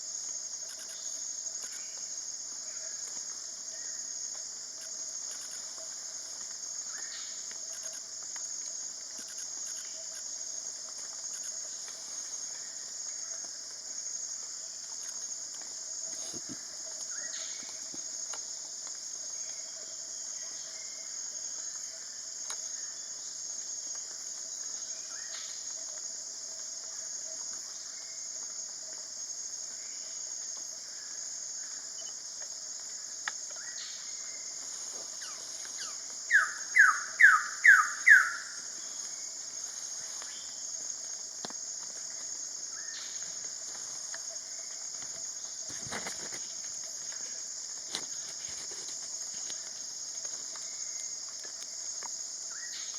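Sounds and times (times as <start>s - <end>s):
insects buzzing: 0.0s - 52.9s
faint bird calls: 35.2s - 38.7s.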